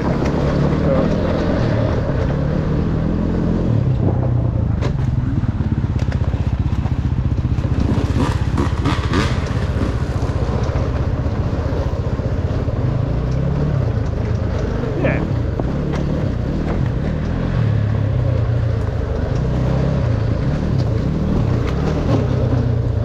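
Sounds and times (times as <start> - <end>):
dirt bike engine running: 0.0 - 23.0
sharp clicks and rattles: 7.5 - 23.0.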